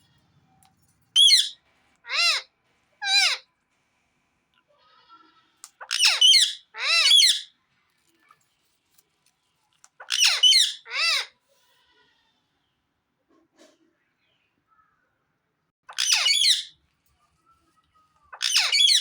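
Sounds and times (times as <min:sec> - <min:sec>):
parrot calling: 0:01.2 - 0:03.4, 0:05.8 - 0:07.5, 0:10.0 - 0:11.3, 0:15.9 - 0:16.7, 0:18.3 - 0:19.0.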